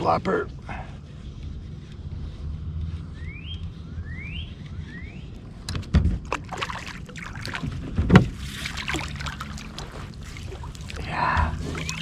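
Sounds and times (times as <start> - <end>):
steady low rumble: 0.0 - 6.5, 7.1 - 12.0
short rising whistles: 3.0 - 5.5, 11.8 - 12.0
water splashing: 6.2 - 12.0.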